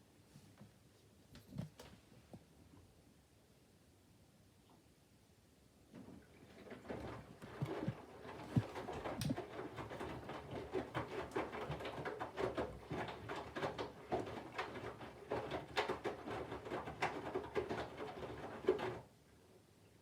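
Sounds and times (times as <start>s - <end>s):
clothes tumbling in washing machine: 5.9s - 19.1s.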